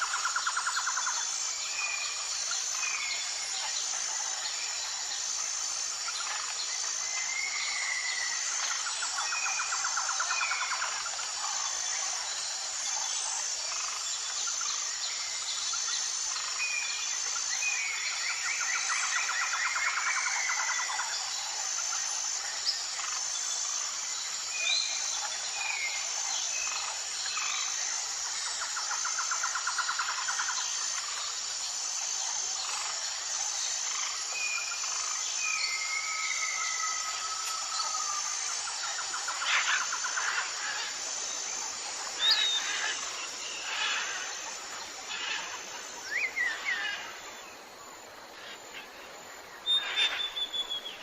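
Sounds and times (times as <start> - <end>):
high insect drone: 0.0 - 51.0
whistled bird calls: 49.6 - 51.0.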